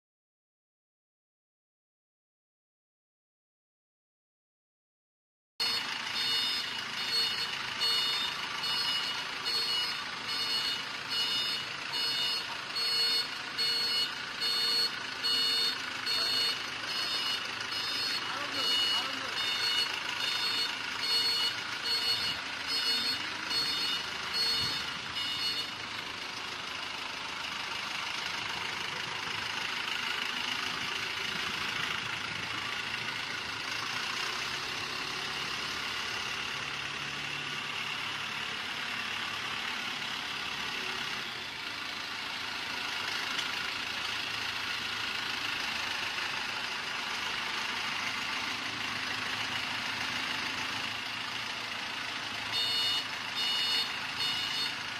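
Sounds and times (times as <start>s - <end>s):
high electronic beep: 5.6s - 25.7s, 52.6s - 54.7s
diesel generator running: 5.6s - 54.9s.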